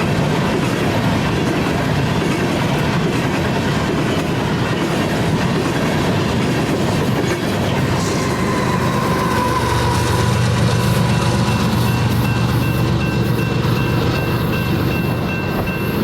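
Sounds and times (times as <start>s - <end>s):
train wheels clattering over rails: 0.0s - 16.0s
thin high whine: 7.8s - 15.9s.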